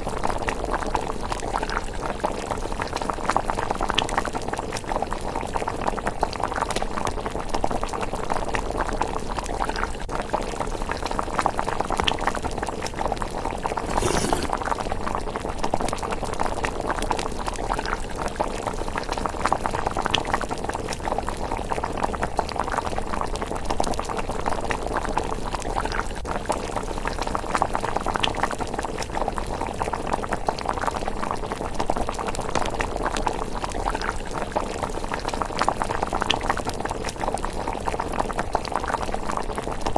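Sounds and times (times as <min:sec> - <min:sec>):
porridge bubbling in a pot: 0:00.0 - 0:39.9.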